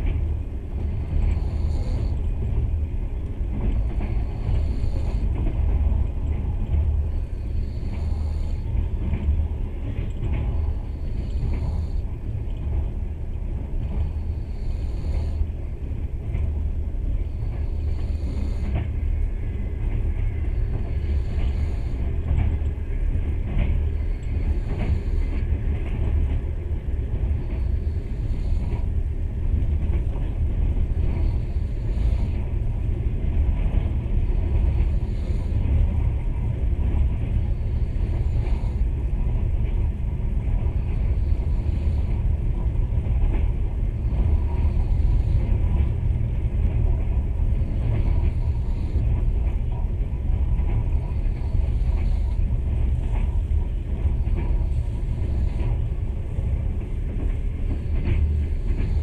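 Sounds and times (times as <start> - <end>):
train rumble inside carriage: 0.0 - 59.0.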